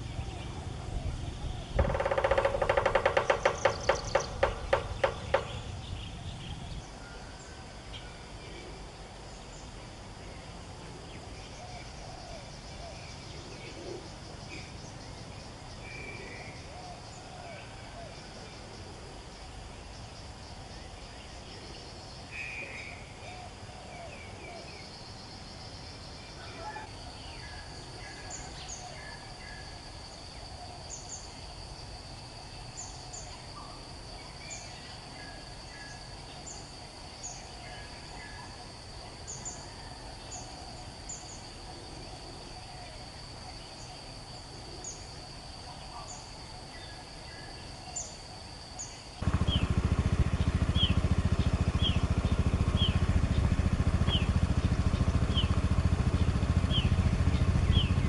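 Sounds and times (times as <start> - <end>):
loud low engine rumble: 0.0 - 6.9, 49.2 - 58.0
wild birds chirping: 0.0 - 58.0.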